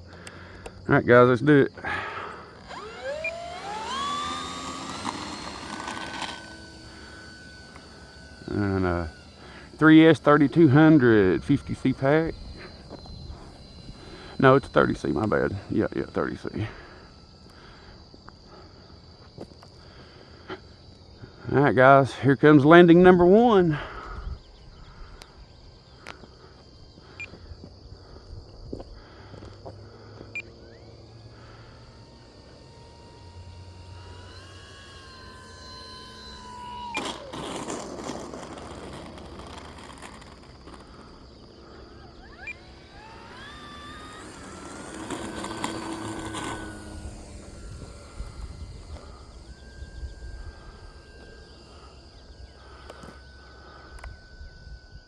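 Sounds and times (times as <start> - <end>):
insects chirping: 0.0 - 55.0
model plane motor whining: 0.0 - 55.0
faint clicks: 53.9 - 54.2.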